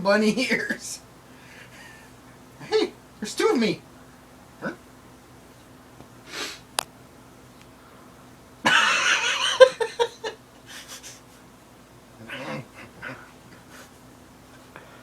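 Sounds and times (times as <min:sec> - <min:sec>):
cat hissing: 0:06.3 - 0:06.7, 0:12.2 - 0:14.0.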